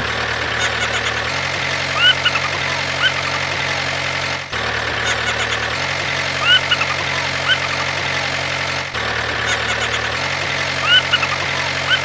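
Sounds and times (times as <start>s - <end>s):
engine idling: 0.0s - 12.0s
rising bird-like chirps: 1.9s - 3.2s, 6.4s - 7.8s, 10.8s - 12.0s.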